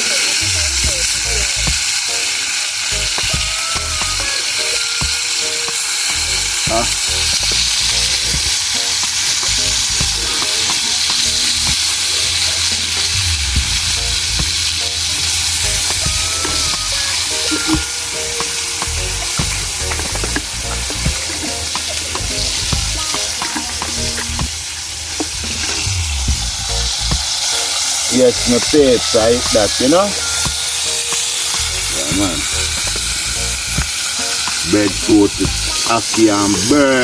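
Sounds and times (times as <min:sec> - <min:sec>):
food sizzling in hot oil: 0:00.0 - 0:37.0
low rumble: 0:11.3 - 0:17.0, 0:24.0 - 0:27.4.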